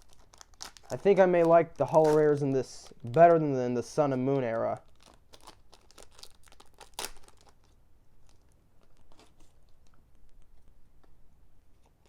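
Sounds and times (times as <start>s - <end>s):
trading cards rustling: 0.0s - 4.0s
foil wrapper crinkling and tearing: 0.0s - 10.6s.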